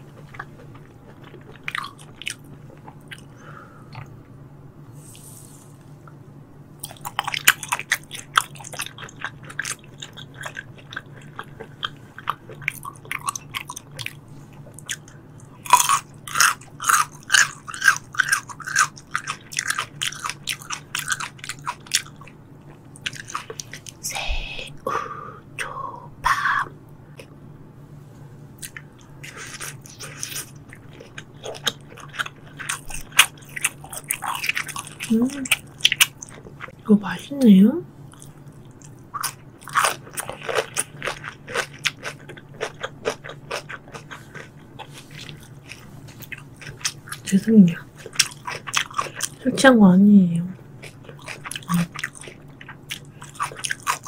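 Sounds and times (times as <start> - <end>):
steady low hum: 0.0 - 54.0
wet chewing mouth sounds: 50.8 - 54.0.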